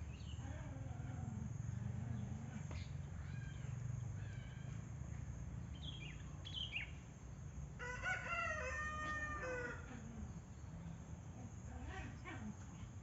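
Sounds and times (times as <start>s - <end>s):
bird chirps: 5.7s - 7.0s
rooster crowing: 7.8s - 10.0s.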